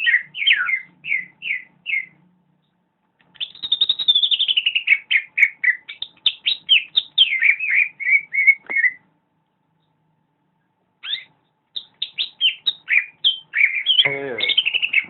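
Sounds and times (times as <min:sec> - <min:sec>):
bird chirping and whistling: 0:00.0 - 0:02.2, 0:03.4 - 0:09.0, 0:11.0 - 0:15.0.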